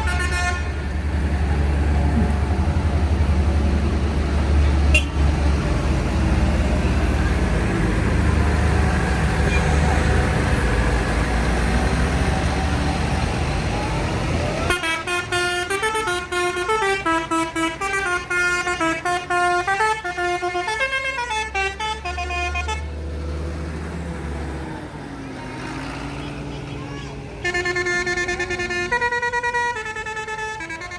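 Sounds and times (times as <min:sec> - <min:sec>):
musical horn playing a tune: 0:00.0 - 0:00.8, 0:14.7 - 0:22.9, 0:27.4 - 0:30.9
tractor engine rumbling: 0:00.0 - 0:30.9.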